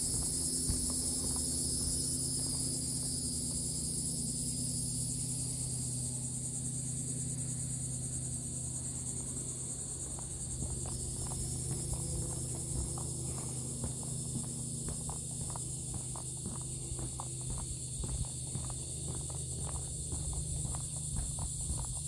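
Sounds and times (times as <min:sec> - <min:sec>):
light footsteps clicking: 0:00.0 - 0:03.8, 0:09.2 - 0:22.0
high-pitched insect chorus: 0:00.0 - 0:22.0
steady low hum: 0:00.0 - 0:22.0.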